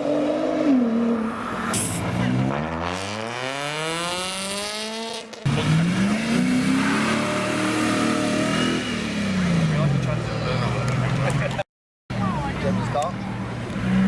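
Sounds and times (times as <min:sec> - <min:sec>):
sports car engine revving: 0:02.0 - 0:10.2.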